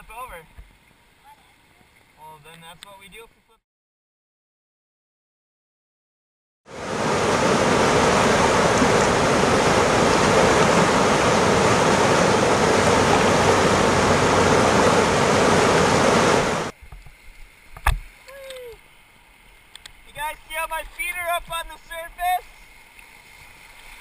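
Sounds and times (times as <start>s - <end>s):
whitewater rushing in rapids: 6.7s - 16.7s.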